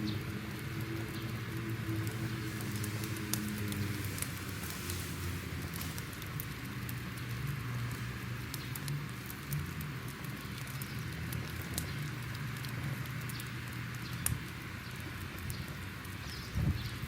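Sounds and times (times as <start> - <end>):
fire crackling and popping: 0.0 - 17.0
fire hissing: 0.0 - 17.0.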